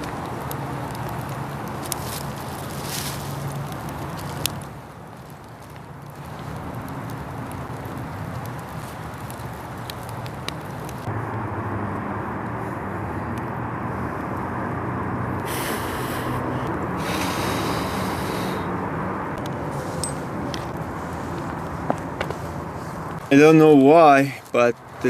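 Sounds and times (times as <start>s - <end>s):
campfire crackling and popping: 0.0s - 25.0s
hiss: 15.4s - 18.7s.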